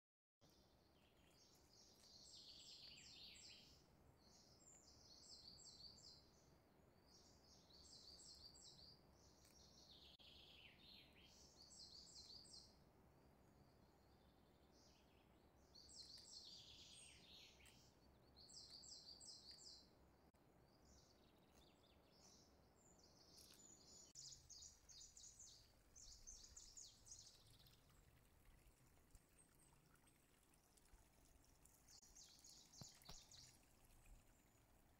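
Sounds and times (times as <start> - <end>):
faint birdsong twittering: 0.4 - 34.9
low steady hiss: 0.4 - 34.9.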